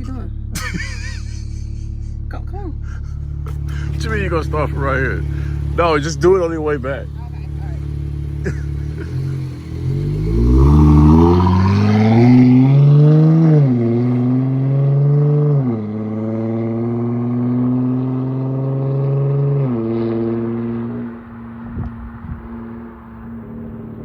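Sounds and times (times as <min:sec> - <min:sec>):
car exhaust under hard acceleration: 0:00.0 - 0:24.0.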